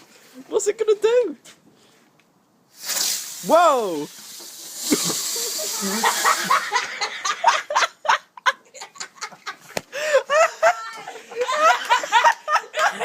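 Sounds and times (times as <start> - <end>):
people laughing: 4.8 - 13.0.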